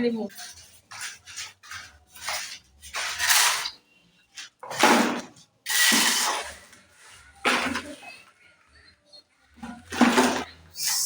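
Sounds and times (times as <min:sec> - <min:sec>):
rough scraping strokes: 0:00.2 - 0:03.8.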